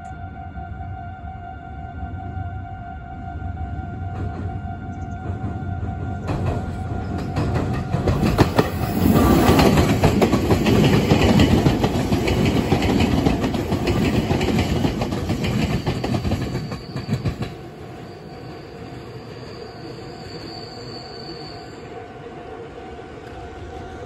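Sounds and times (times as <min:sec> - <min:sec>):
electric train passing: 0:00.0 - 0:24.0
wheels clacking over rail joints: 0:06.2 - 0:17.8.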